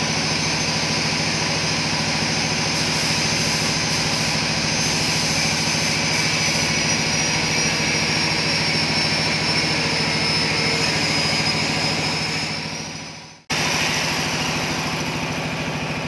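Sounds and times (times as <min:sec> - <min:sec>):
hiss: 0:01.6 - 0:07.4.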